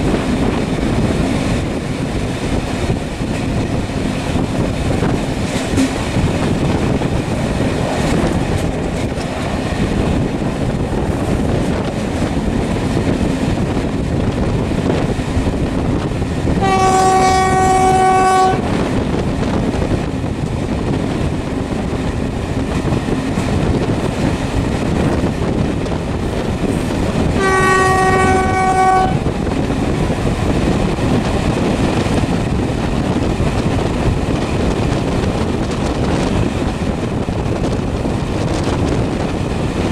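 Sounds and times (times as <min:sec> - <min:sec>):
train rumbling: 0:00.0 - 0:39.9
train horn: 0:16.6 - 0:18.7, 0:27.4 - 0:29.3.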